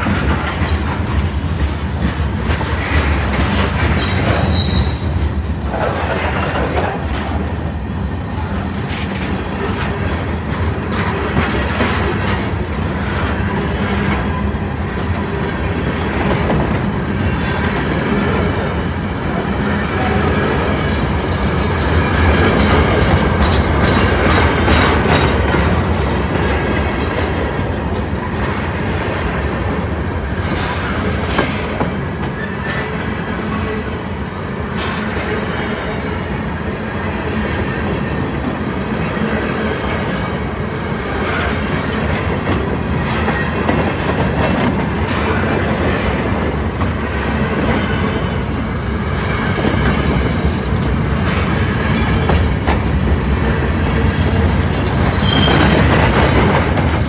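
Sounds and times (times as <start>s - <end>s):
wheels clacking over rail joints: 0.0s - 7.5s, 15.1s - 33.8s, 38.9s - 57.0s
freight train rumbling past: 0.0s - 57.0s.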